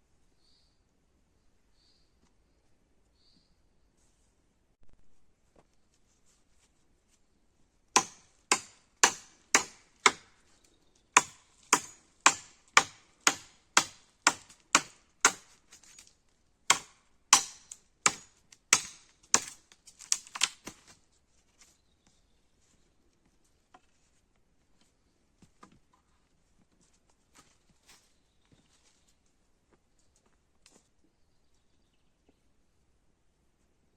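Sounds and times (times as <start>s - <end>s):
sharp hand tool strikes: 8.0s - 10.3s, 11.2s - 15.5s, 16.7s - 19.6s.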